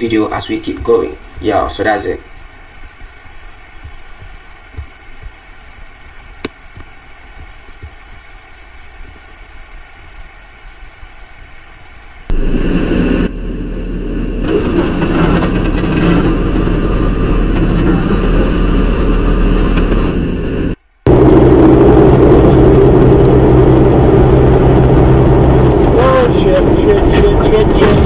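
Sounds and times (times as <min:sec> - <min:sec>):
road noise: 0:00.0 - 0:28.0
vehicle engine from inside cab: 0:21.1 - 0:28.0.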